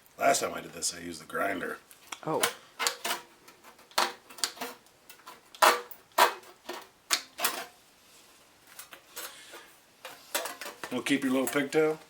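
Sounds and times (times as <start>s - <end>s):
snips cutting sheet metal: 5.5s - 6.5s.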